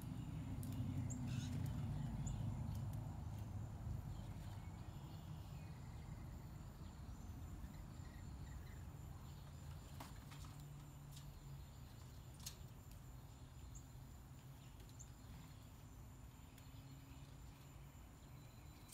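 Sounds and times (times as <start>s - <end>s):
faint small bird chirps: 0.1s - 10.5s, 14.6s - 18.9s.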